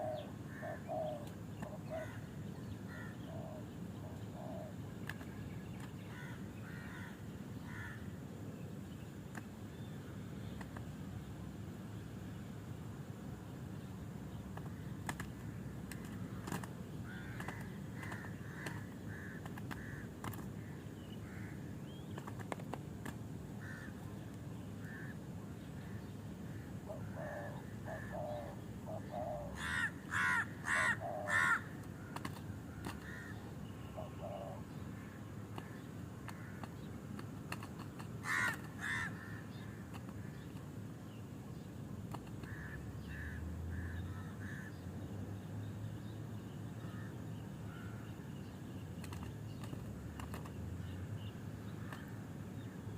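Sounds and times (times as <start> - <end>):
harsh bird calls: 0.0 - 8.2, 14.4 - 45.0
birds chirping softly: 0.0 - 52.9.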